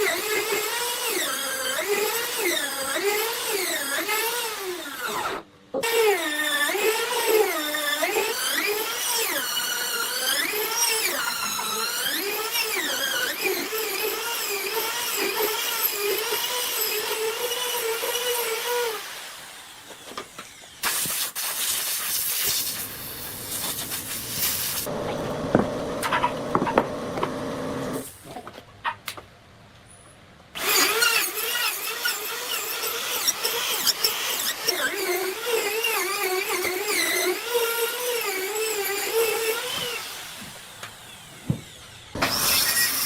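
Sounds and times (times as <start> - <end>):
power tool whining: 22.4 - 28.1, 30.6 - 43.0.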